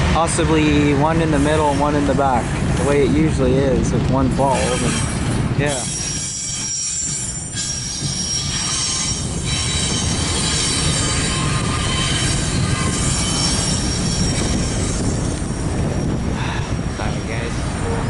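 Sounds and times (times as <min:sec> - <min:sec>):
freight train cars rumbling: 0:00.0 - 0:18.0
high wheel squeal: 0:04.5 - 0:18.0.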